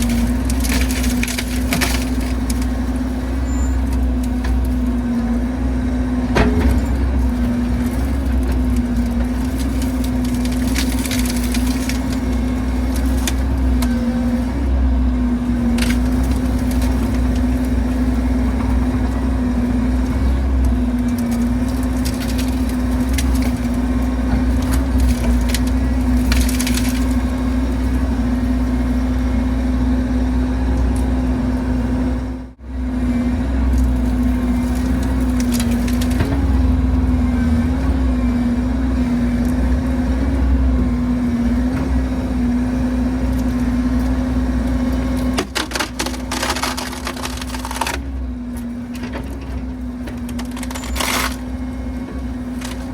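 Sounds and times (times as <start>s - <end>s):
wood cracking and splintering: 0.0s - 29.4s, 33.5s - 52.9s
excavator diesel engine running: 0.0s - 52.9s.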